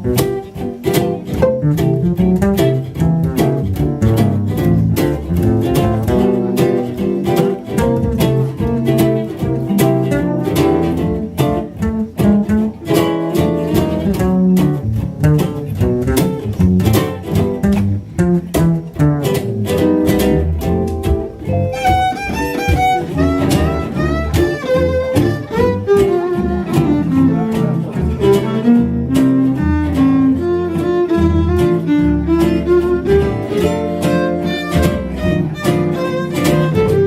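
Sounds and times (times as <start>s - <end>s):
fiddles and guitar: 0.0s - 37.0s
strummed rhythm guitar: 0.0s - 37.0s
walking bass: 0.0s - 37.0s
sliding fiddle-like melody: 21.6s - 27.4s.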